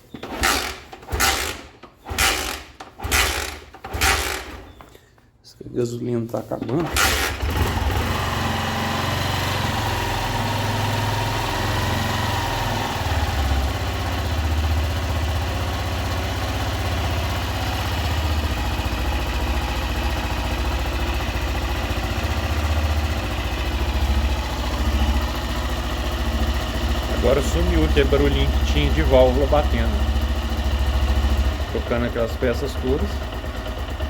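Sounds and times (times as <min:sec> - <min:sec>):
motorcycle engine idling: 0:00.0 - 0:04.9, 0:06.8 - 0:34.0.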